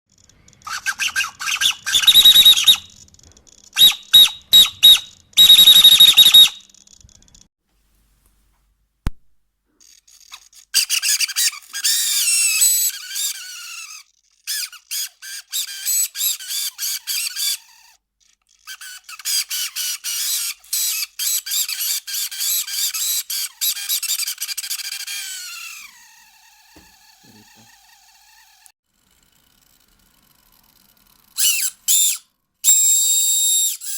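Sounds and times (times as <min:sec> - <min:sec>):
servo whining: 0:00.1 - 0:07.5, 0:09.8 - 0:33.9.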